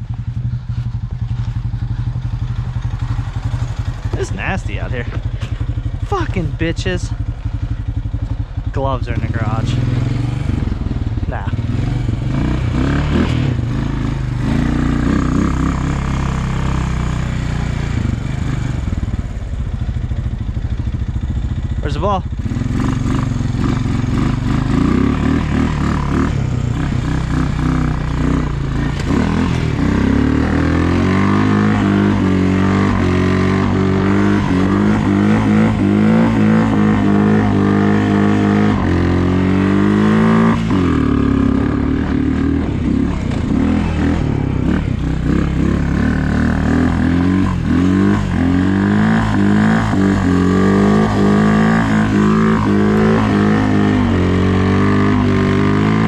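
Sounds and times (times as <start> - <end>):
snowplow engine revving: 22.4 - 56.0.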